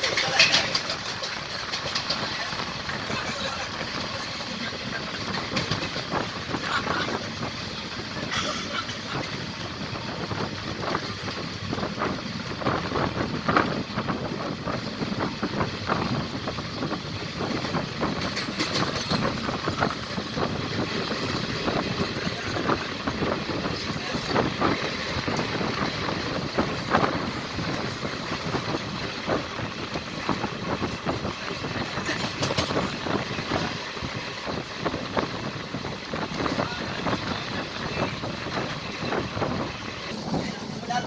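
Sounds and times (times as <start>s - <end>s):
clatter of passing coaches: 0.0s - 41.0s
train wheels rumbling on rails: 0.0s - 41.0s.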